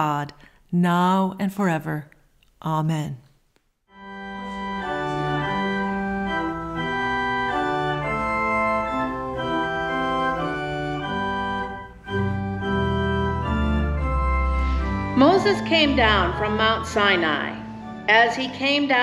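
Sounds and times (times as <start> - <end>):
organ playing sustained chords: 3.9 - 19.0.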